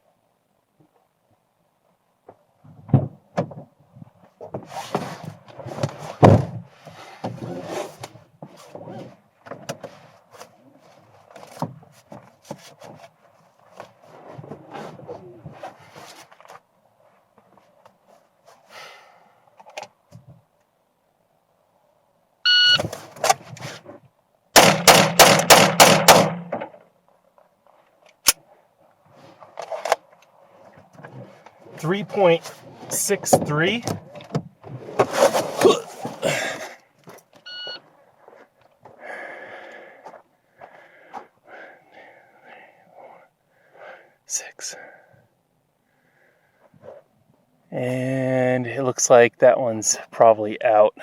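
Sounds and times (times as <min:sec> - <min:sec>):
handling knocks and rustling: 0:02.2 - 0:18.6, 0:32.4 - 0:39.0
shot timer beep: 0:22.5 - 0:22.8, 0:37.5 - 0:37.8
rapid pistol shots: 0:24.6 - 0:26.5.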